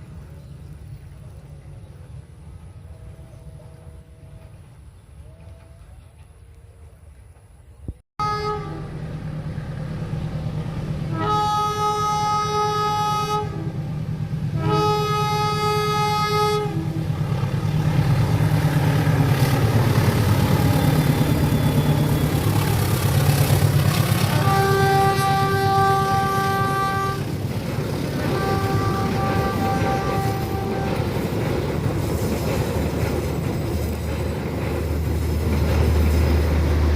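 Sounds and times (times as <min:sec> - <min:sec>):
train rumbling: 0:00.0 - 0:36.9
locomotive horn blasts: 0:08.2 - 0:09.0, 0:11.1 - 0:14.0, 0:14.6 - 0:17.2, 0:24.2 - 0:27.3, 0:28.2 - 0:31.2.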